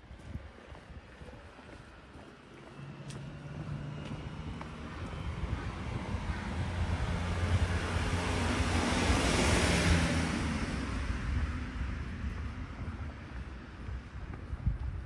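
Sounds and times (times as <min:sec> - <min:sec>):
car driving past: 0:02.6 - 0:12.0.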